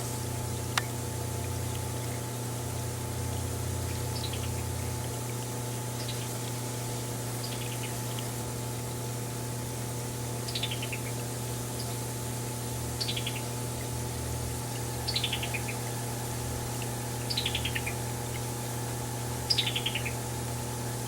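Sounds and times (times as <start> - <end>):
bird calling in clipped notes: 15.0 - 15.9, 16.8 - 18.5, 19.4 - 20.2.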